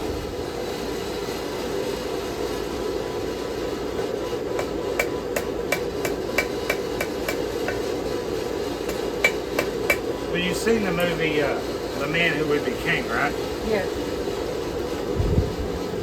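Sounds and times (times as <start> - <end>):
steady rushing noise: 0.0 - 16.0
hammer ringing on anvil: 4.6 - 7.9, 8.8 - 10.1.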